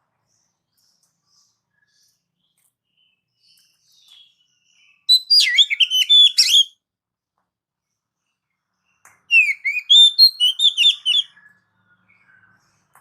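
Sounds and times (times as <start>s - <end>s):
bird whistling with sharp clicks: 5.1s - 6.7s, 9.3s - 11.3s.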